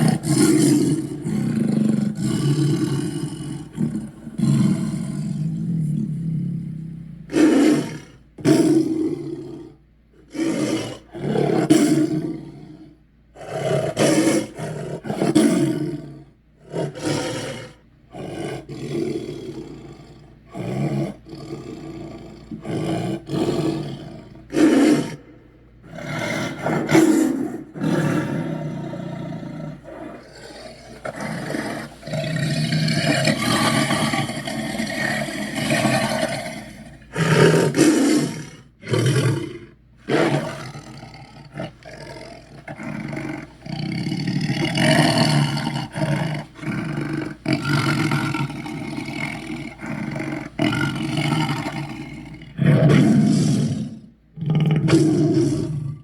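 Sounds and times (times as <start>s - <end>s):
dragon roars and growls: 27.8s - 56.0s.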